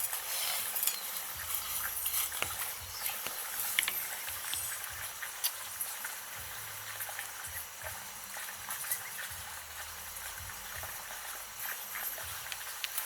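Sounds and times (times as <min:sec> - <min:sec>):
small clicks and patters: 0:00.0 - 0:06.2.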